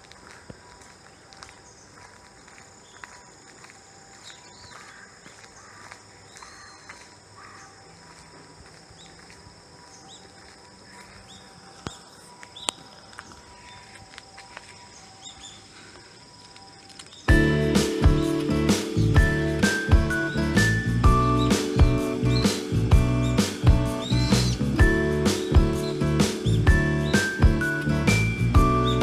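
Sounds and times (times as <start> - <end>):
short chirping calls: 17.3 - 29.0.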